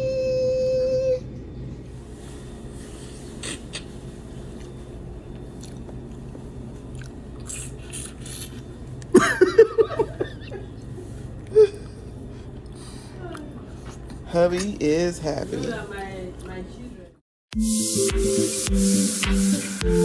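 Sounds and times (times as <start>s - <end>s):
low room hum: 0.0s - 17.2s
man chewing: 3.3s - 9.2s, 10.6s - 14.8s
person speaking: 14.3s - 16.5s.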